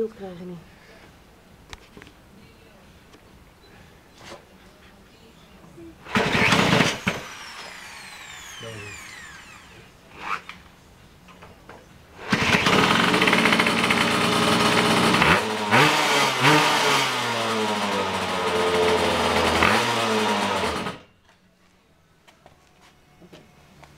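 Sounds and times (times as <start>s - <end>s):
two-stroke motorbike engine revving: 6.0s - 10.4s, 12.2s - 21.1s.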